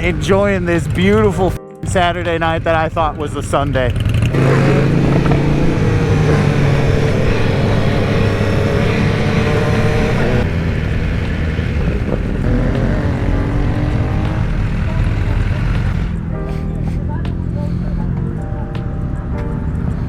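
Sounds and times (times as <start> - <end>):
wind and road rush: 0.0 - 20.0
motorcycle engine running: 3.4 - 18.4.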